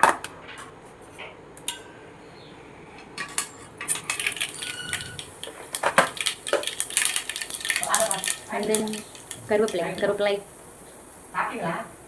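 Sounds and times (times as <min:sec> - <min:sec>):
seeds popping in hot oil: 0:03.8 - 0:11.6.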